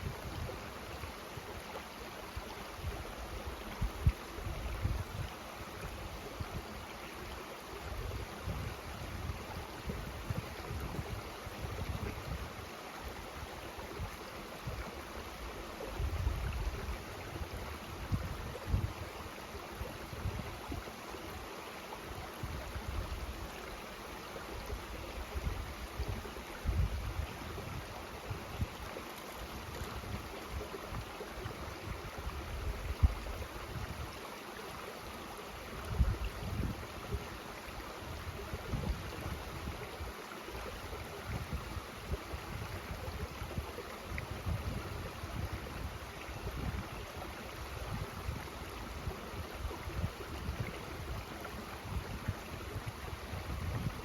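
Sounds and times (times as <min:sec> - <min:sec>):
mountain stream rushing: 0:00.0 - 0:54.0
wind buffeting microphone: 0:51.8 - 0:54.0.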